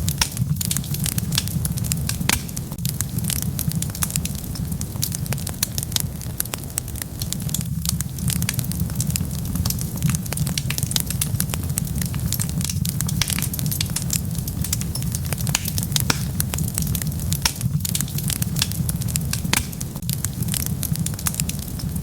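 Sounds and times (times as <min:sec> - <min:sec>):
constant low rumble: 0:00.0 - 0:22.0
wood fire crackling: 0:00.0 - 0:22.0.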